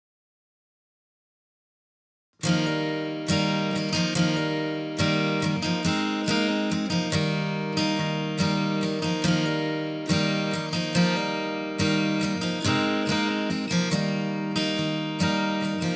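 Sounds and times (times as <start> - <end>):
acoustic guitar strumming: 2.4 - 15.9.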